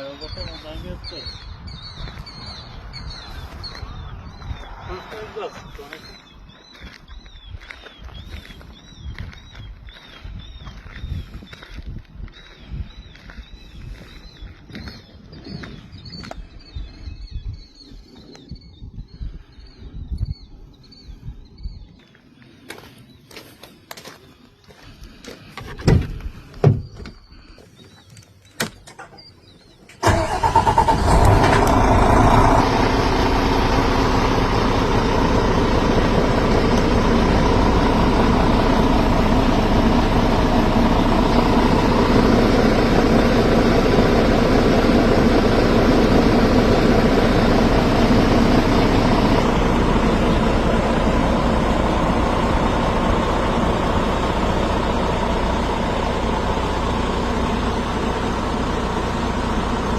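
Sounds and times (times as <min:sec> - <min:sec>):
truck engine starting and idling: 0:00.0 - 0:11.4, 0:28.4 - 0:59.9.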